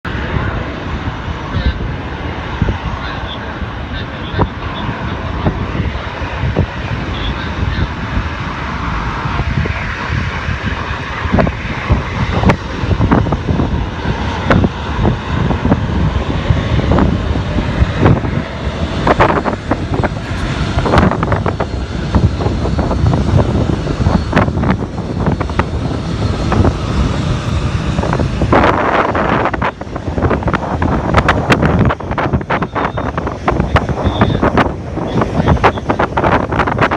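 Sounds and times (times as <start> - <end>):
jet engines at takeoff power: 0.1 - 36.9.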